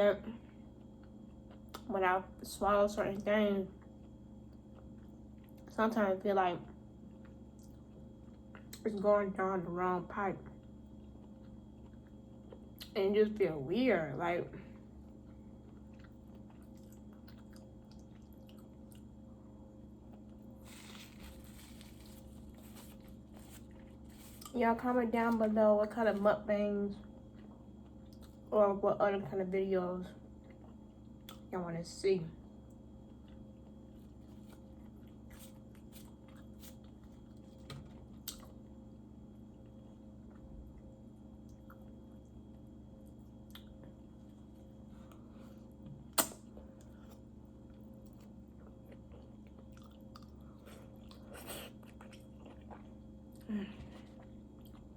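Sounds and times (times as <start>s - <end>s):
low steady hum: 0.0s - 54.9s
person chewing food: 10.6s - 12.9s, 14.7s - 24.6s, 27.1s - 28.5s, 33.0s - 38.7s, 39.5s - 54.9s.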